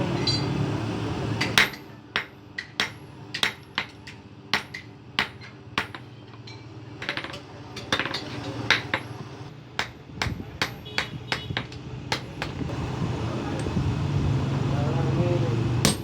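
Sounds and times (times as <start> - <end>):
hammer striking steel on anvil: 0.2 - 0.6, 1.4 - 12.6.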